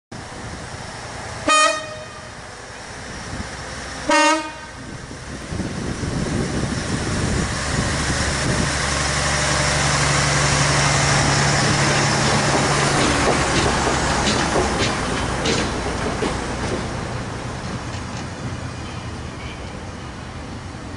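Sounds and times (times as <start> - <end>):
wheel and rail noise: 0.2 - 20.9
train horn toots: 1.4 - 2.4, 4.1 - 4.9.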